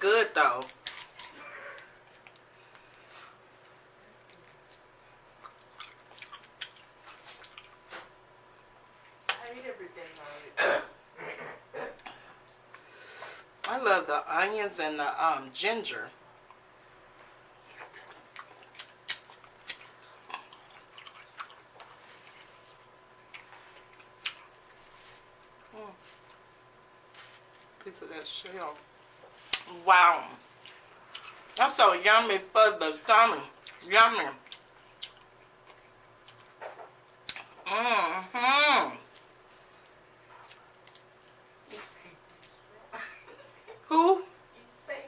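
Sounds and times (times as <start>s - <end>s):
wet chewing and mouth sounds: 0.6s - 8.2s, 16.4s - 27.8s, 30.4s - 31.6s, 33.6s - 37.7s, 39.1s - 42.7s.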